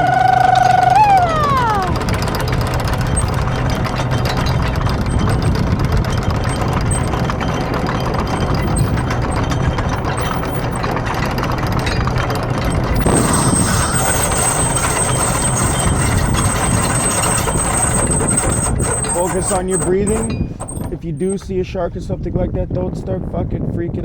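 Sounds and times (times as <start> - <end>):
thin high whine: 0.0 - 2.1
boat engine running: 0.0 - 24.0.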